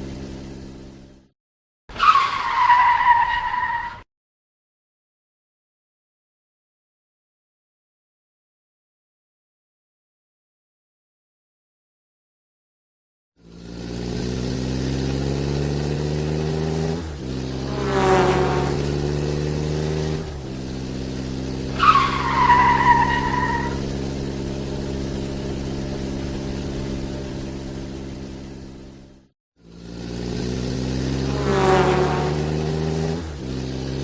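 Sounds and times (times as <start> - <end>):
car engine accelerating: 0.0 - 1.3, 13.4 - 34.0
tyre squeal: 1.9 - 4.0, 21.6 - 24.0.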